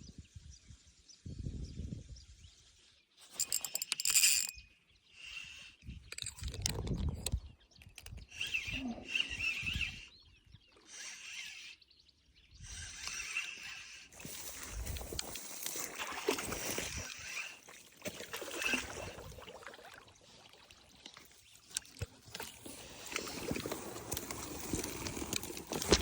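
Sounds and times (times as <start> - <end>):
water splashing and sloshing: 14.2 - 26.0.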